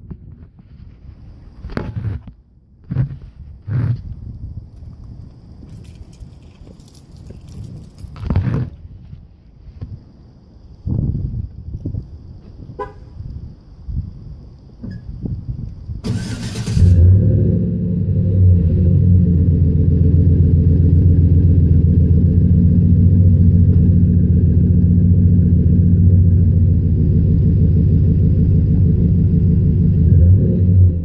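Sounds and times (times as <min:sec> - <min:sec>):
engine cranking: 0:16.0 - 0:17.2
truck engine idling: 0:19.2 - 0:30.0.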